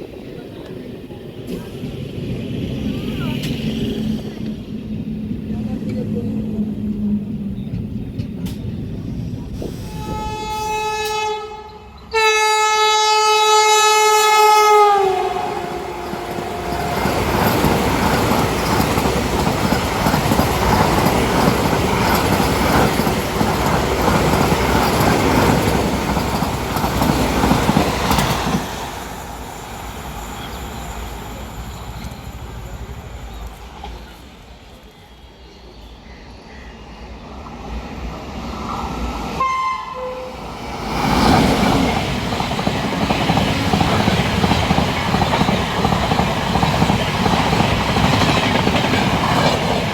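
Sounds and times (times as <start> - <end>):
train rushing past: 0.0 - 49.9
train horn blasts: 9.8 - 17.4, 39.4 - 40.4
rail clatter: 15.4 - 34.3, 40.4 - 49.9.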